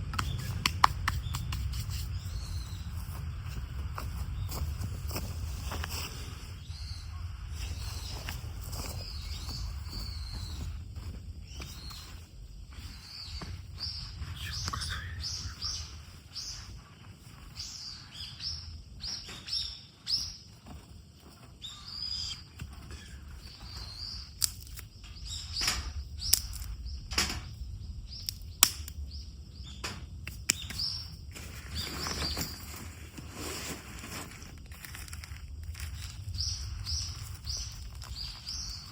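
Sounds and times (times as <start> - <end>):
sharp clicks and snaps: 0.0 - 2.1, 24.4 - 24.9, 25.6 - 27.4, 28.2 - 29.0
small birds chirping: 0.0 - 38.9.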